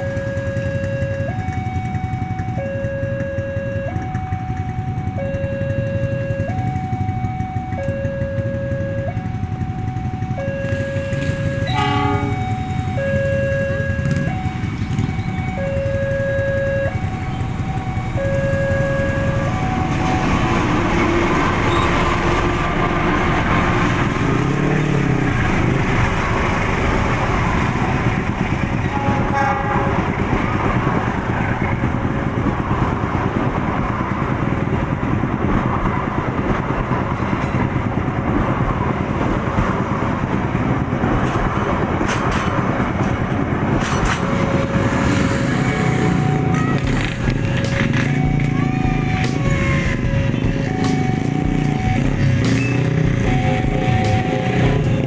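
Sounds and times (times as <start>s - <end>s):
two-tone crossing alarm: 0.0s - 26.5s, 27.1s - 32.4s, 43.0s - 55.0s
train rumbling past: 0.0s - 55.0s
train wheel noise: 0.0s - 55.0s
train horn toots: 10.7s - 14.2s, 28.8s - 30.3s.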